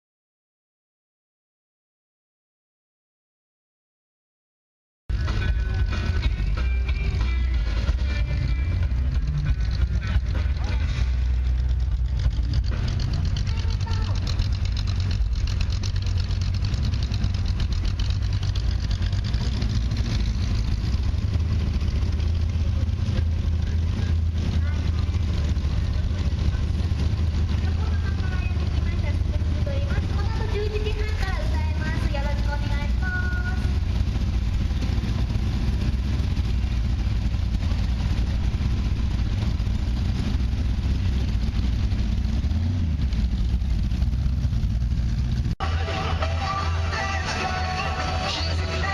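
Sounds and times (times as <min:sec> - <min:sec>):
engine idling: 0:05.1 - 0:48.9
faint voices: 0:22.3 - 0:33.7.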